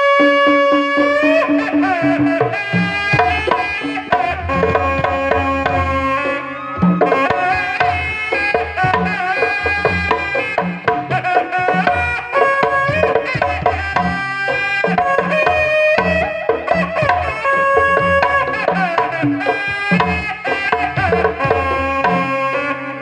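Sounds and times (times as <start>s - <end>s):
bass drum beats: 0.0s - 11.2s
music with hand drums and melodic lead: 0.0s - 23.0s.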